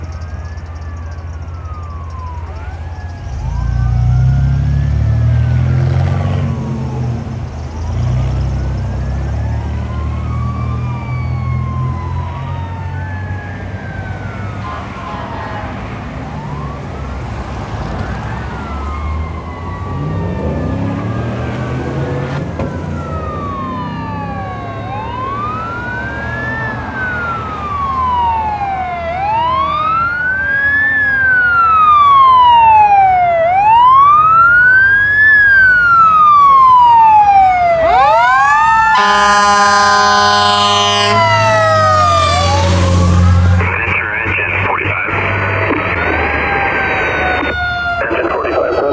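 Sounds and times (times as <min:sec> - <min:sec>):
fire engine sirens wailing: 0:00.0 - 0:48.9
low air horn blasts: 0:38.7 - 0:44.0.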